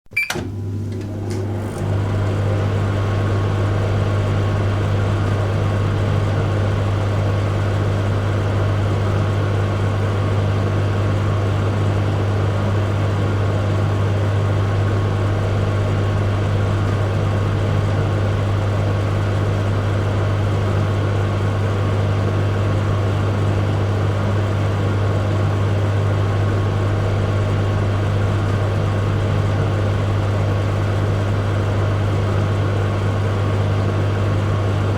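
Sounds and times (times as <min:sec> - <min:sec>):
microwave clicks: 0:00.1 - 0:02.0
microwave oven humming: 0:00.1 - 0:34.9.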